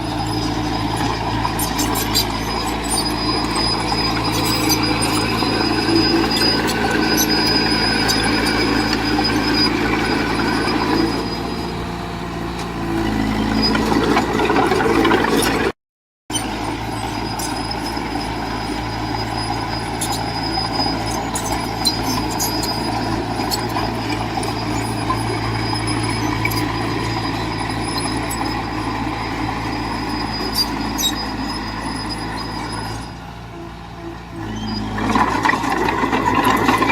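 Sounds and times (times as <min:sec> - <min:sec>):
heavy diesel engine running: 0:00.0 - 0:15.7, 0:16.3 - 0:36.9.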